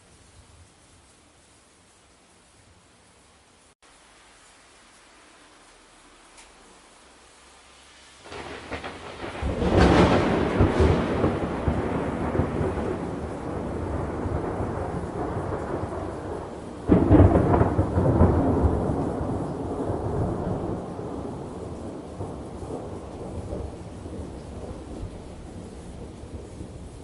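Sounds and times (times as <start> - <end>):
rain hissing: 0.0 - 27.0
thunder rumbling: 8.2 - 27.0.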